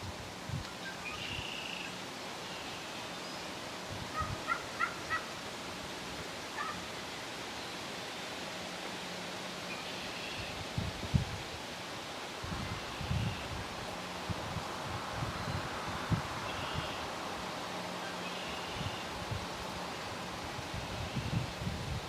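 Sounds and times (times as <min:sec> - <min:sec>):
steady hiss: 0:00.0 - 0:22.0
turkey gobbling: 0:04.2 - 0:05.3, 0:06.6 - 0:06.8.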